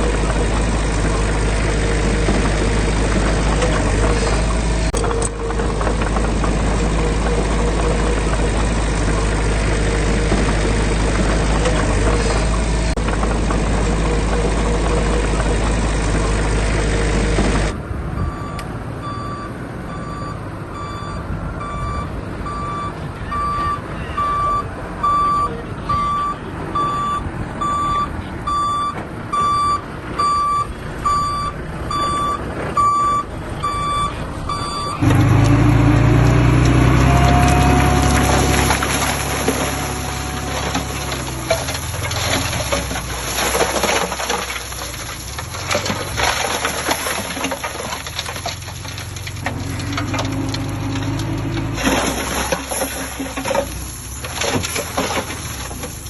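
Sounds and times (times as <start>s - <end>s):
diesel engine running: 0.0s - 56.0s
reversing alarm beeping: 18.2s - 36.2s.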